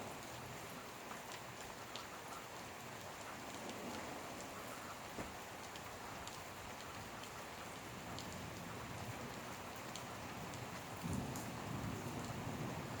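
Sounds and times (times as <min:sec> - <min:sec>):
heavy rain falling: 0:00.0 - 0:13.0
sharp drips and splats: 0:00.0 - 0:13.0
low rumble of thunder: 0:08.0 - 0:13.0.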